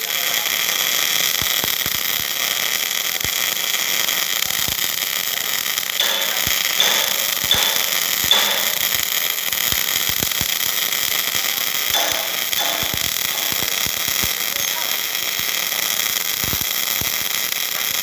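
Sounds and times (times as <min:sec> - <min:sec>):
welding arc crackling: 0:00.0 - 0:18.0.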